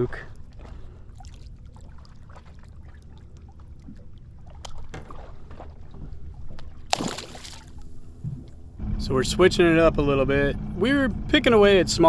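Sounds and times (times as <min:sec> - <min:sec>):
water lapping against boat hull: 0:00.0 - 0:08.8
steady low rumble: 0:07.7 - 0:12.0.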